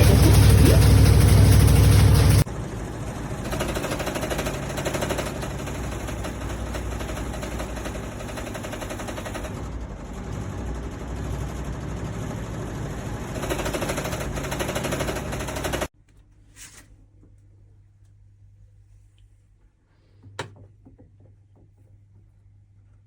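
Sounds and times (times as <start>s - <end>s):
fast mechanical rattling: 0.0s - 15.9s.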